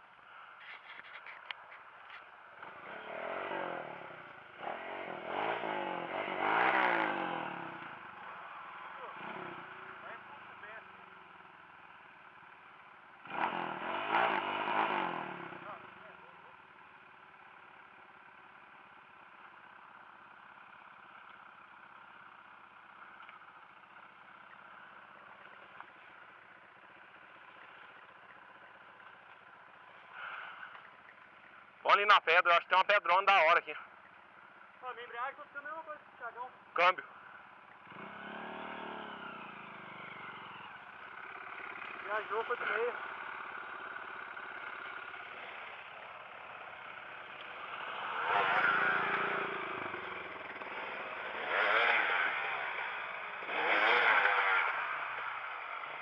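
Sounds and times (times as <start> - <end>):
dirt bike engine revving: 2.5 - 11.3, 13.2 - 16.2, 37.8 - 56.0.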